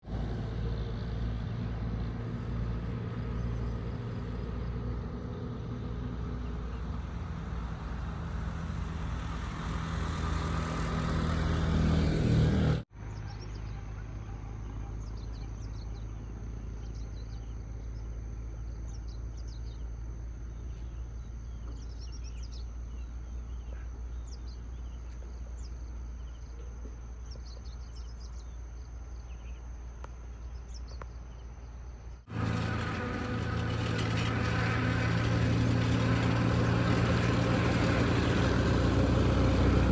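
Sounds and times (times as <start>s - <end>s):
vehicle engine hum: 0.0s - 39.9s
bird chirps: 13.0s - 29.7s.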